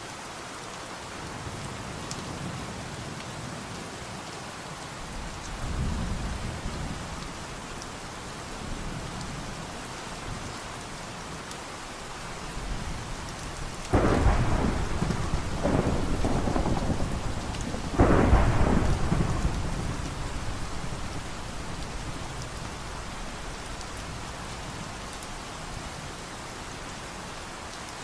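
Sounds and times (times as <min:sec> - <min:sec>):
steady rain falling: 0:00.0 - 0:28.0
thunder rumbling: 0:13.9 - 0:24.4.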